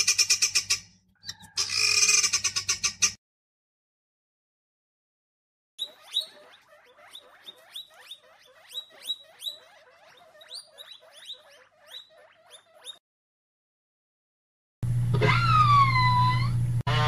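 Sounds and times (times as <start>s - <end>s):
small animal squeaking: 0.0s - 3.2s, 5.8s - 13.0s.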